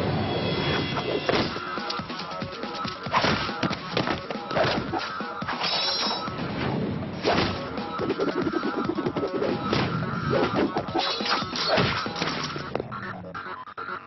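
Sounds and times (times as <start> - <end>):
comic fight whacks and crashes: 3.1 - 5.9, 6.6 - 7.8, 9.7 - 12.8.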